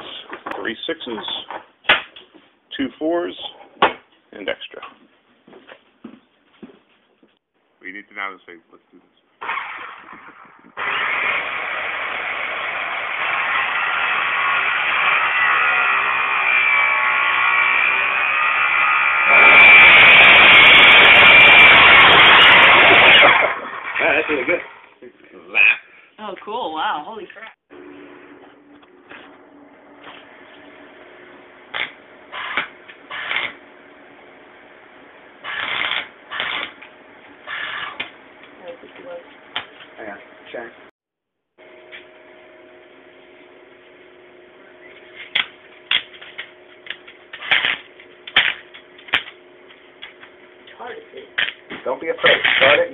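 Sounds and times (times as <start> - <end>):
power saw cutting metal: 9.4 - 25.0, 31.7 - 33.6, 35.4 - 36.8, 37.4 - 38.0, 52.2 - 52.9
arc welder crackling: 9.5 - 25.0, 30.0 - 34.2, 35.4 - 40.1, 44.8 - 52.9.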